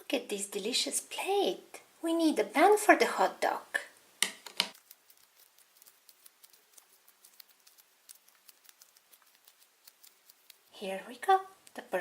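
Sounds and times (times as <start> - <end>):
hands kneading modelling dough: 4.3 - 11.7.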